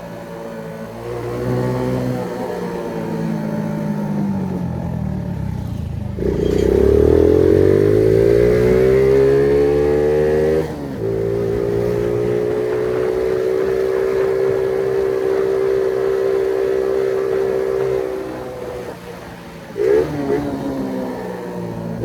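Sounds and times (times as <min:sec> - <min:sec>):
moped engine accelerating: 0:00.0 - 0:22.0.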